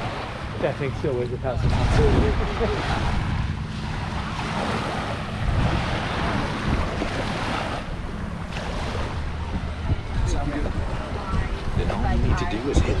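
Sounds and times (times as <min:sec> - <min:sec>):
rushing water and surf: 0:00.0 - 0:13.0
wind buffeting microphone: 0:00.0 - 0:13.0.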